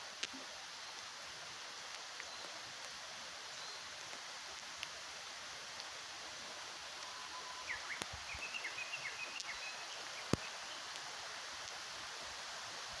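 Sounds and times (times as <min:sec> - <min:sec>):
steady hiss: 0:00.0 - 0:13.0
small birds chirping: 0:06.8 - 0:11.1.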